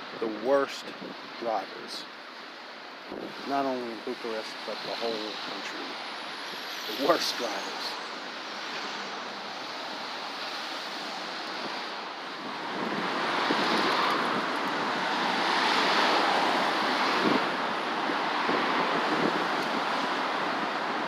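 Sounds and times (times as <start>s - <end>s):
city traffic: 0.0s - 21.0s
wind on microphone: 3.0s - 3.5s, 10.4s - 21.0s.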